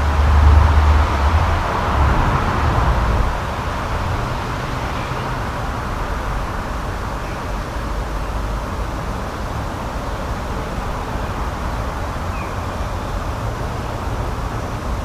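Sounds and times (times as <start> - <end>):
low rushing outdoor noise: 0.0 - 15.0.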